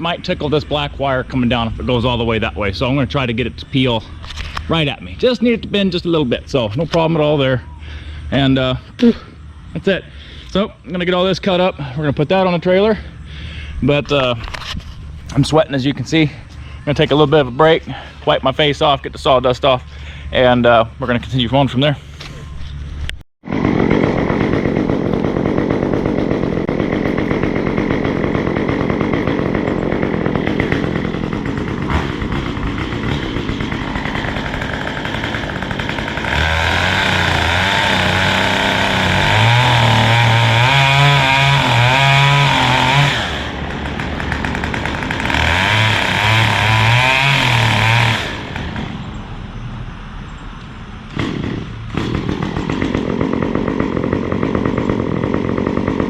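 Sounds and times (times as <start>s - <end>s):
chainsaw cutting a tree: 23.4s - 49.2s, 51.1s - 56.0s.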